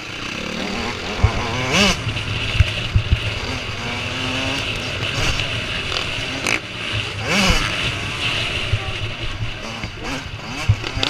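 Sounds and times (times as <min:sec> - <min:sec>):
motocross bikes racing: 0:00.0 - 0:11.0
short low thumps: 0:00.8 - 0:05.6.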